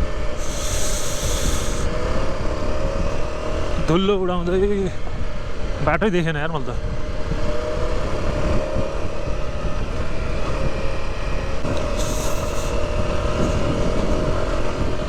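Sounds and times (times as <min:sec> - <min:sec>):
wind rumble: 0:00.0 - 0:06.0, 0:06.6 - 0:15.0
motorcycle engine running: 0:00.0 - 0:15.0
short hiss: 0:00.4 - 0:01.9, 0:12.0 - 0:12.8.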